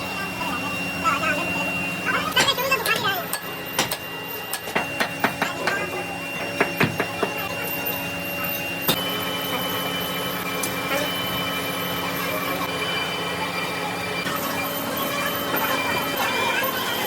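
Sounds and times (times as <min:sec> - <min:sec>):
factory machinery humming and whining: 0:00.0 - 0:17.0.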